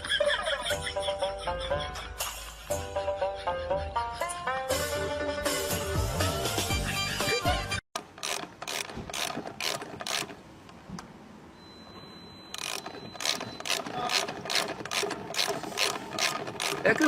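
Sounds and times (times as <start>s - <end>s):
sharp mechanical clicks: 8.0s - 10.8s, 12.5s - 17.0s.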